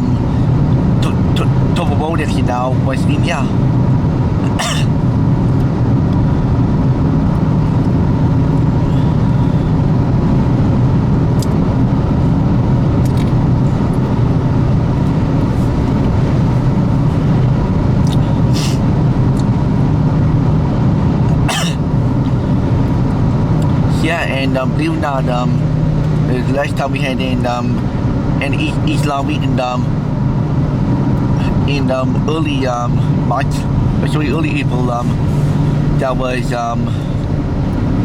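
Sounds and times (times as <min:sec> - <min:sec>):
car cabin road noise: 0:00.0 - 0:38.0.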